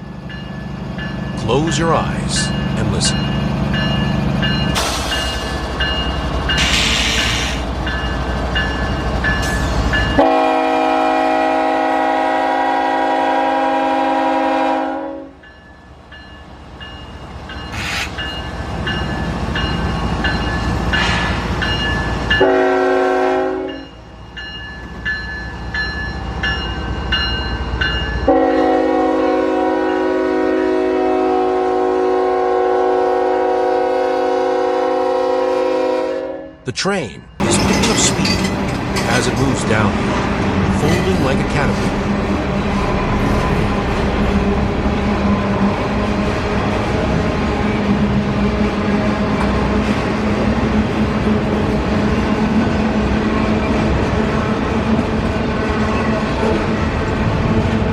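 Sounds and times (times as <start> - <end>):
train rumbling and clattering: 0.0 - 32.8, 36.8 - 57.9
train air horn blasts: 10.2 - 15.4, 22.4 - 23.8, 28.3 - 36.6.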